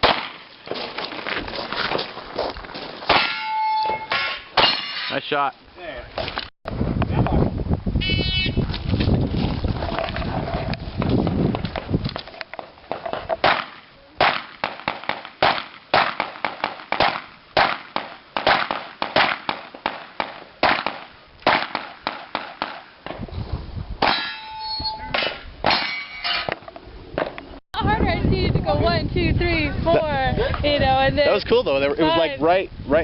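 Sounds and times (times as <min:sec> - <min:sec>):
pistol shots: 0:00.0 - 0:00.4, 0:13.4 - 0:22.9
steel targets ringing: 0:03.1 - 0:05.3, 0:24.0 - 0:26.6.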